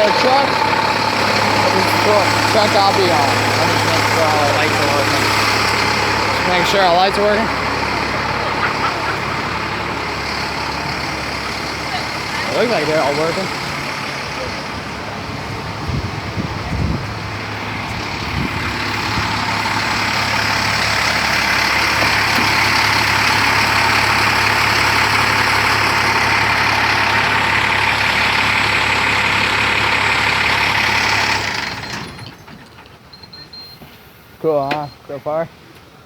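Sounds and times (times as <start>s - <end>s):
truck engine hum: 0.0s - 36.0s.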